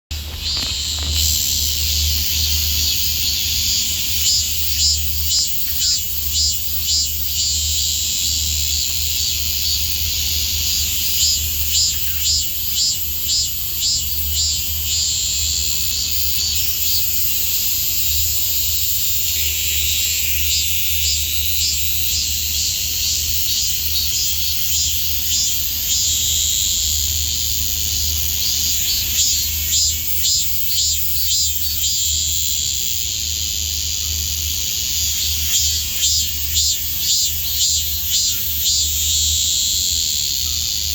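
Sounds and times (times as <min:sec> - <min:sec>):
cicadas droning: 0:00.1 - 0:40.9.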